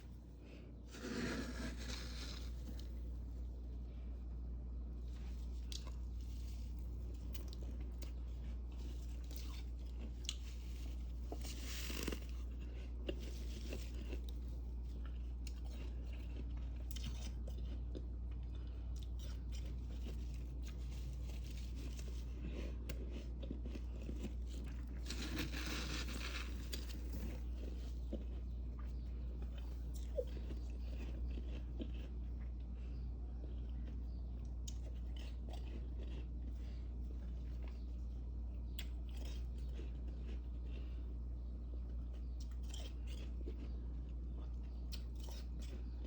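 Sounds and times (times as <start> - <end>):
freezer frost crunching and crackling: 0.0 - 46.0
steady low hum: 0.0 - 46.0.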